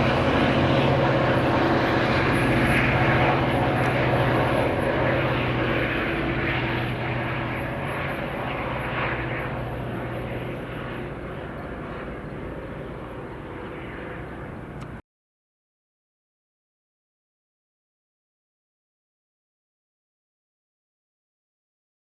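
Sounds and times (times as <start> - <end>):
diesel locomotive engine humming: 0.0 - 15.0.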